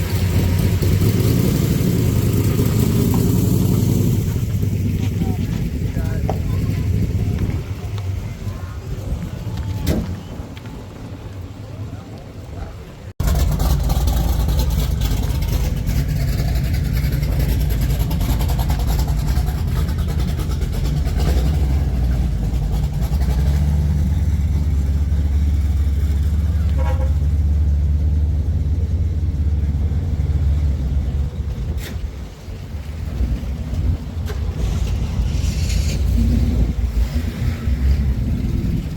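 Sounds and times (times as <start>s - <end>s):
car engines with deep exhaust rumble: 0.0s - 38.9s.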